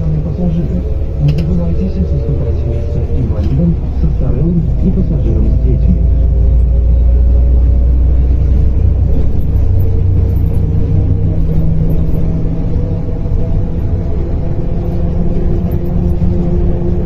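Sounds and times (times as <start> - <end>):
bus diesel engine rumbling: 0.0 - 17.0.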